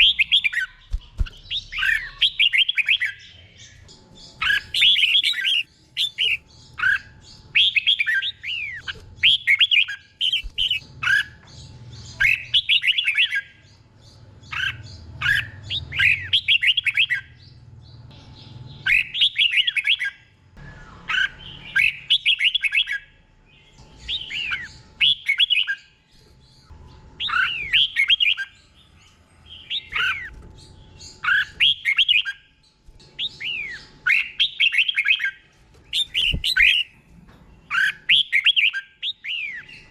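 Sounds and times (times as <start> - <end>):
bulbul singing warbled whistles: 18.8 - 23.1, 31.0 - 32.5, 33.2 - 36.9, 37.7 - 39.9.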